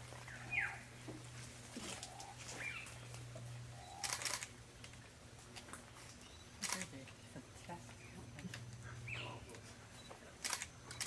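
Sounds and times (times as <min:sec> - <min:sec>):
steady low hum: 0:00.0 - 0:11.0
camera shutter clicks: 0:04.0 - 0:04.5, 0:06.6 - 0:06.9.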